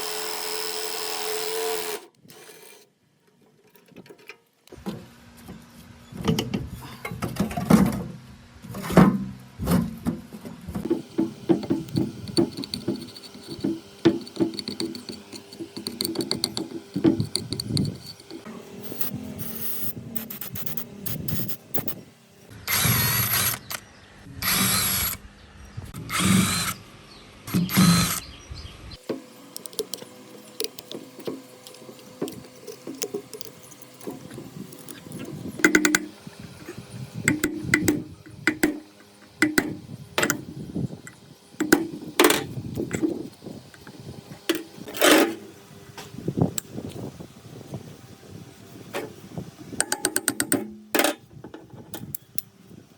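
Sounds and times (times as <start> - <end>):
power tool running: 0.0 - 2.9, 10.8 - 50.0
metal parts knocking and clicking: 11.6 - 18.4, 29.6 - 40.4, 49.8 - 52.2.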